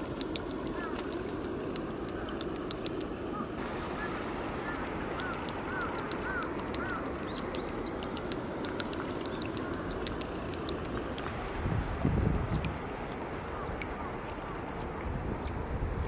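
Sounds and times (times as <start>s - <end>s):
faint ticks: 4.8s - 16.0s.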